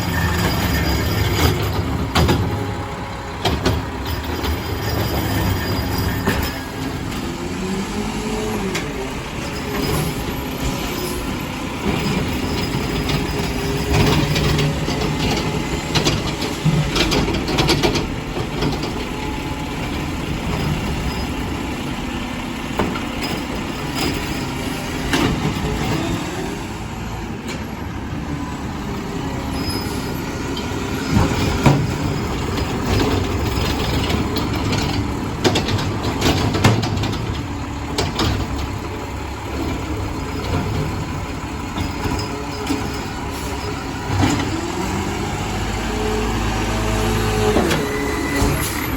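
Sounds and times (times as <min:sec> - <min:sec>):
diesel engine running: 0:00.0 - 0:48.9
clanks and knocks: 0:00.3 - 0:07.3, 0:11.8 - 0:19.2, 0:30.6 - 0:38.9.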